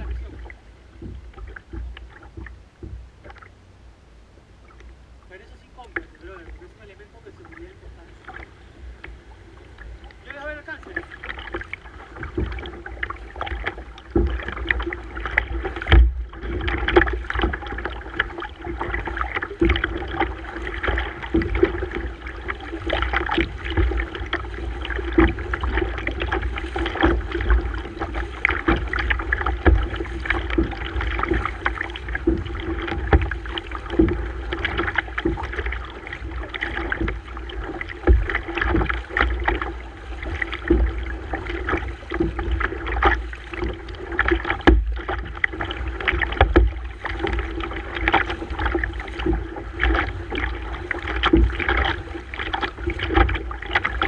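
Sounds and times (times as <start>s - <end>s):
water splashing around kayak: 0.0s - 54.0s.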